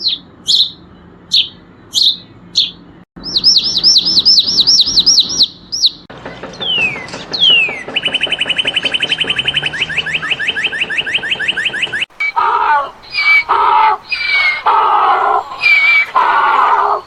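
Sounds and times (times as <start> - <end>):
bird trilling: 0.0 - 17.0
harsh animal calls: 6.9 - 17.0.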